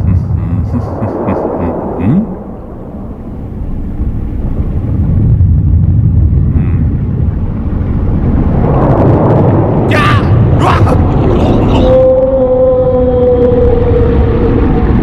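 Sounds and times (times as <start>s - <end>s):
loud low rumble: 0.0s - 15.0s.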